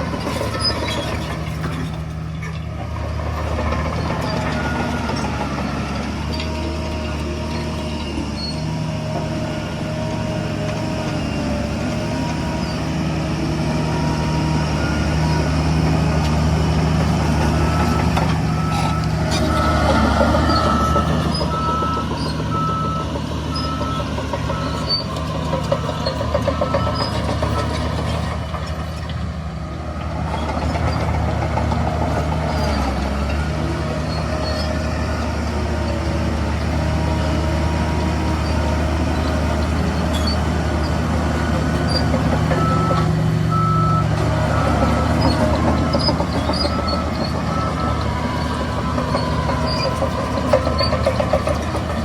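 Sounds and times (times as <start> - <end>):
heavy diesel engines running: 0.0 - 52.0
reversing alarm beeping: 17.5 - 28.0, 42.5 - 51.3.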